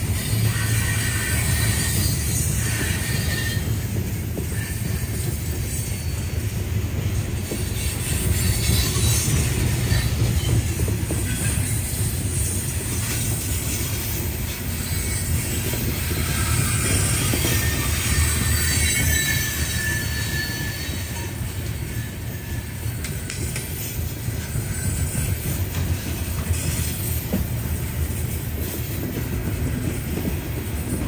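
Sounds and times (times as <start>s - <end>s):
steel wheels rumbling on rails: 0.0s - 31.0s
faint wheel squeal: 0.2s - 6.5s, 14.7s - 23.1s.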